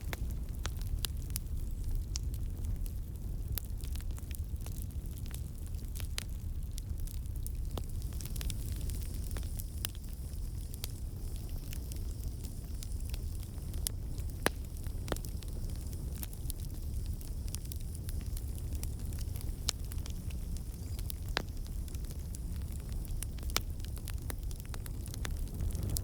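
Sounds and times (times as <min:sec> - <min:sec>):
campfire flames rumbling: 0:00.0 - 0:26.0
fire crackles and pops: 0:00.0 - 0:26.0.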